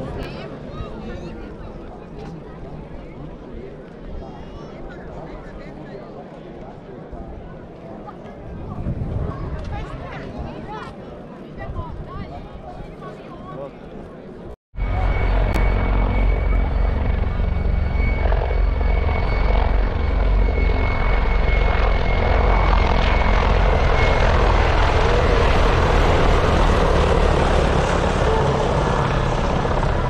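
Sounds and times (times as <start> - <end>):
helicopter rotor and turbine: 14.8 - 30.0
high-pitched whine: 14.8 - 30.0.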